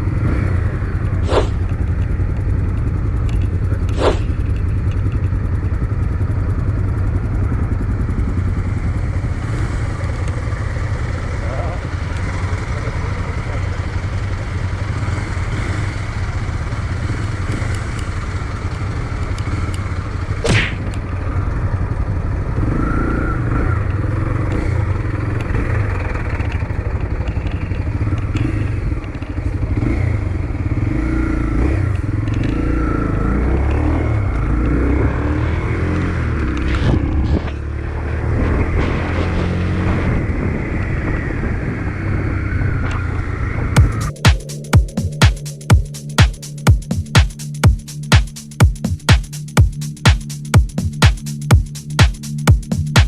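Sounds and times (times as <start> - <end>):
motorcycle engine rumbling: 0.0 - 53.0
sharp clack: 1.2 - 1.8, 3.9 - 4.6, 20.4 - 21.2
thud: 20.4 - 21.0, 38.4 - 40.3.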